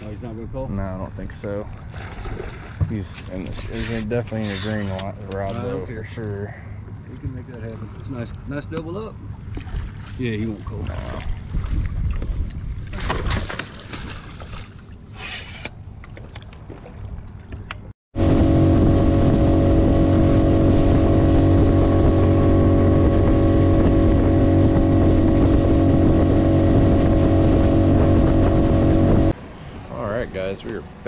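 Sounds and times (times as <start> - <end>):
outboard motor running: 1.2 - 13.7, 15.0 - 29.4
wind noise on microphone: 11.1 - 13.5, 18.2 - 29.4.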